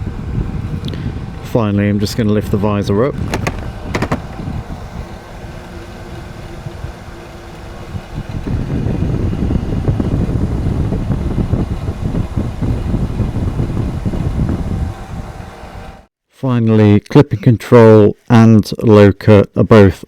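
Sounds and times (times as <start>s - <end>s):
wind buffeting a microphone: 0.0s - 16.0s.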